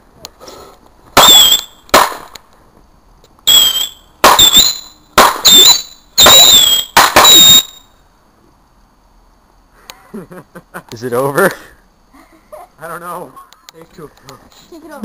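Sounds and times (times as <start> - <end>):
fireworks bangs and fizzes: 0.4 - 2.9, 3.5 - 7.7
firework whistle: 1.2 - 2.3, 3.4 - 7.9.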